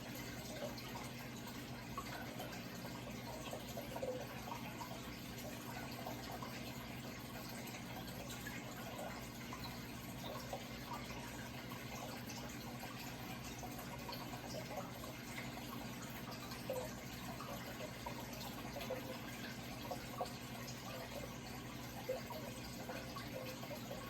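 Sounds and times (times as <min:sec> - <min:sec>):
water trickling and bubbling: 0:00.0 - 0:24.0.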